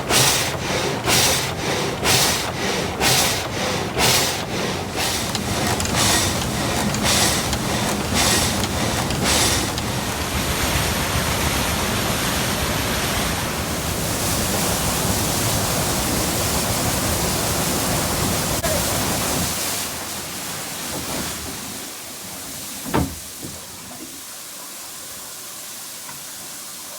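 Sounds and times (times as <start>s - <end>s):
sawmill saw rasping strokes: 0.0s - 10.3s
rushing water: 0.0s - 26.9s.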